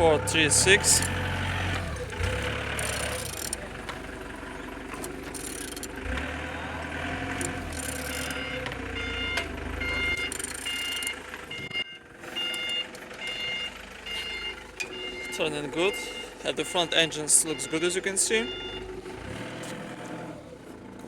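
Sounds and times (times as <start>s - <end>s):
reversing alarm beeping: 0.0s - 3.6s, 5.4s - 19.6s
low engine rumble: 0.0s - 21.0s.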